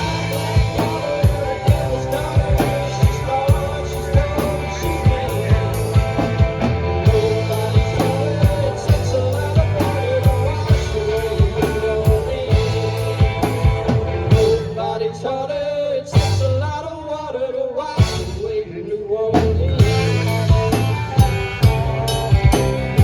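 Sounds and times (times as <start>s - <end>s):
drums beating: 0.0s - 14.9s, 18.0s - 18.6s, 19.4s - 23.0s
bass: 0.0s - 17.4s, 18.0s - 23.0s
guitar: 0.0s - 23.0s.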